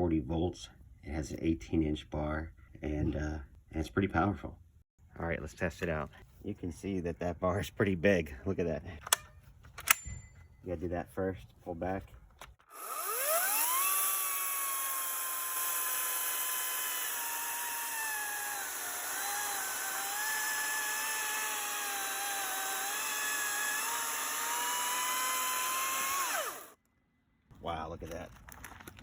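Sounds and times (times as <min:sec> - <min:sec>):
electric chainsaw cutting wood: 0:12.6 - 0:26.8.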